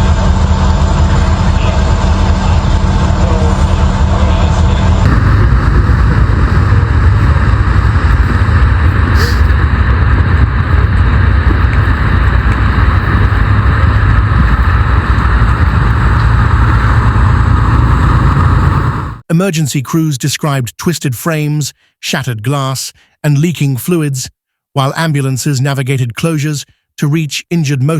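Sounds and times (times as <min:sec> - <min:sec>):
vehicle road and wind noise: 0:00.0 - 0:19.2.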